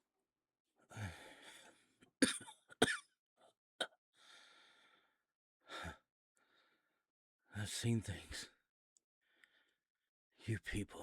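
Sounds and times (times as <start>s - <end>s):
man coughing: 2.2s - 3.0s
man breathing heavily: 4.2s - 6.9s.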